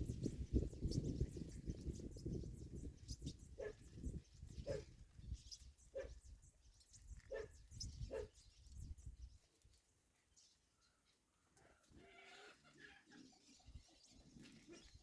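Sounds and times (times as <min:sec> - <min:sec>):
distant dog barking: 0:03.6 - 0:03.9, 0:04.6 - 0:04.9, 0:05.9 - 0:06.2, 0:07.3 - 0:08.4.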